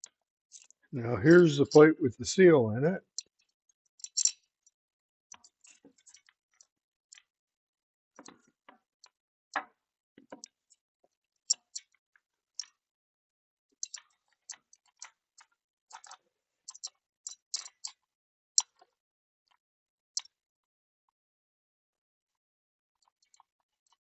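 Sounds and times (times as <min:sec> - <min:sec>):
small metal parts clicking: 0:04.1 - 0:04.4.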